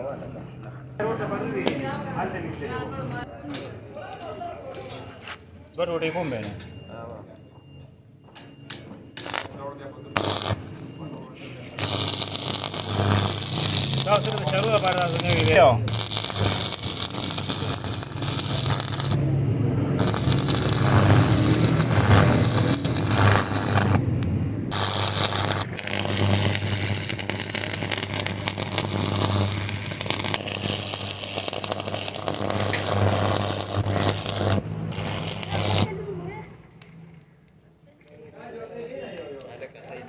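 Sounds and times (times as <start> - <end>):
scraping crackling hiss: 10.2 - 10.9, 11.8 - 19.3, 20.0 - 36.2.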